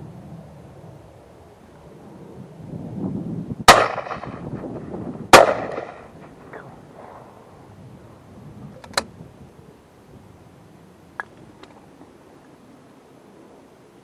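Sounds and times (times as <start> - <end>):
shotgun shots with echo: 3.7 - 4.4, 5.3 - 6.1
quiet sharp click: 8.8 - 9.1.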